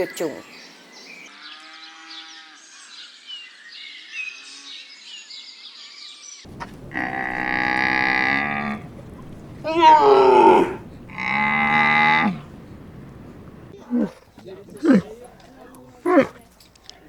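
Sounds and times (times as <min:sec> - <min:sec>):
birds chirping: 0:06.4 - 0:17.0
cow mooing: 0:06.5 - 0:14.2, 0:14.8 - 0:15.1, 0:16.0 - 0:16.4.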